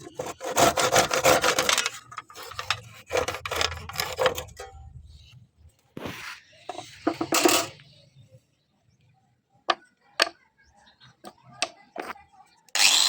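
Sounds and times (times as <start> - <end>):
metal scrape: 0.0 - 5.4, 6.0 - 7.8
metal tools clinking: 7.1 - 7.8.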